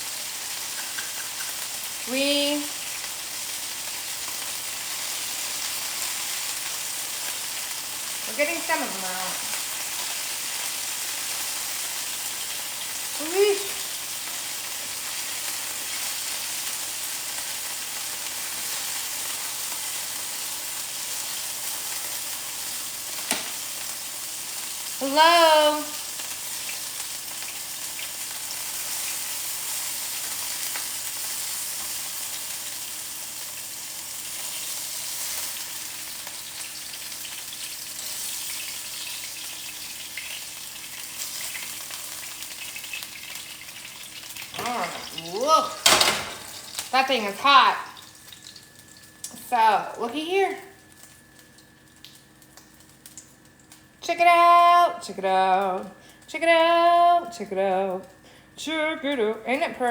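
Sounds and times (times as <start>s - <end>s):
chicken sizzling in a skillet: 0.0s - 59.9s.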